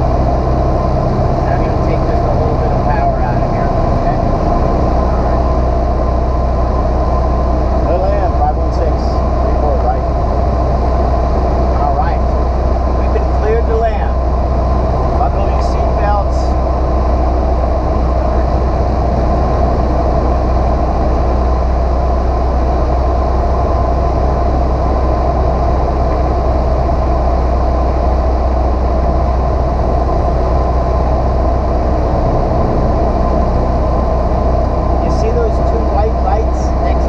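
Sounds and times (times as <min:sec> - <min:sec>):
airplane engine droning: 0:00.0 - 0:37.0.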